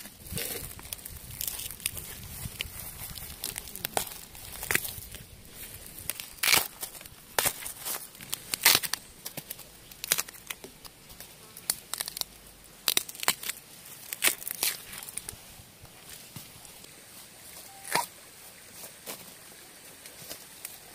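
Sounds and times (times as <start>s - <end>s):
bamboo shoots snapping: 0.0s - 5.2s, 5.9s - 15.4s.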